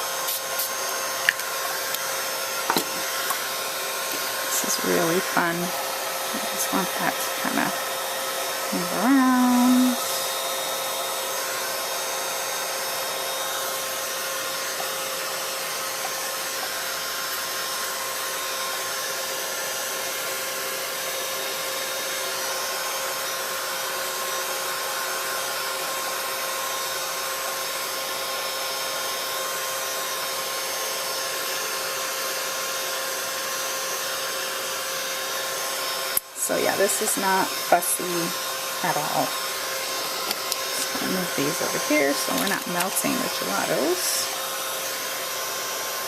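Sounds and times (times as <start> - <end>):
heat tool fan whirring: 0.0 - 46.0.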